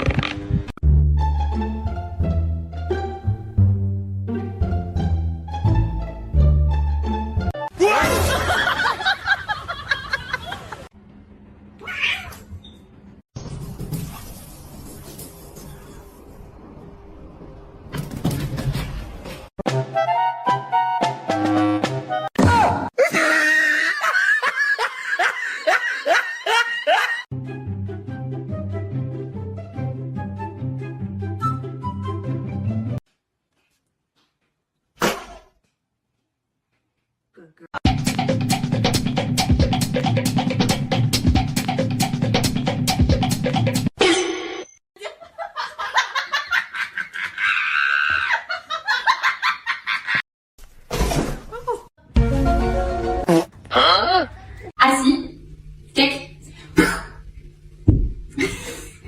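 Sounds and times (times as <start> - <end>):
person laughing in bursts: 7.8 - 10.9, 23.0 - 27.3, 58.3 - 59.0
upbeat background music: 37.9 - 43.9.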